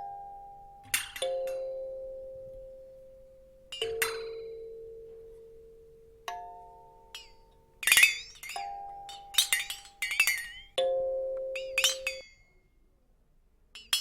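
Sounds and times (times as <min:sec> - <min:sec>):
high chirping or tinkling: 0:03.6 - 0:12.8.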